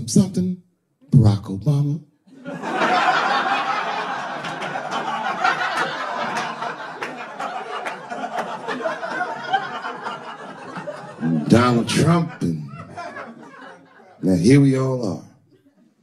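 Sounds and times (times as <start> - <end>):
audience laughing: 2.3 - 14.4
crowd roar: 2.4 - 14.1
hand claps: 5.7 - 8.2.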